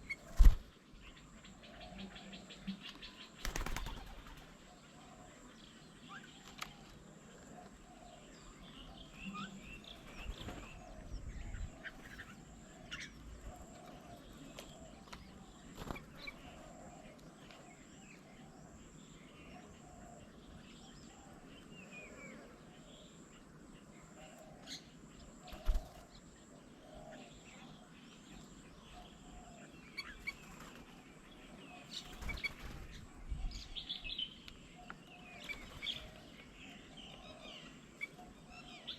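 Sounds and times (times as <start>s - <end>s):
wing flaps: 0.1s - 0.7s
bird chirps and calls: 26.7s - 38.9s.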